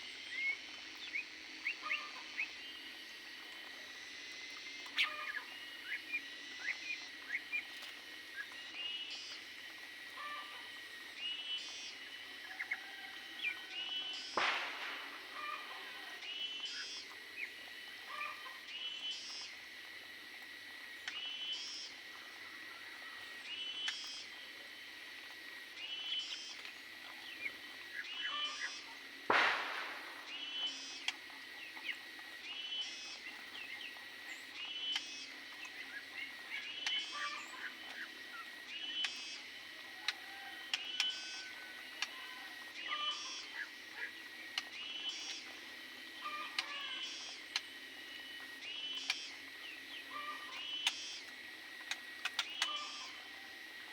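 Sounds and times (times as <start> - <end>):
small birds chirping: 0.0 - 2.9, 25.8 - 39.5, 48.6 - 53.2
sharp click: 14.3 - 15.2, 29.3 - 31.2.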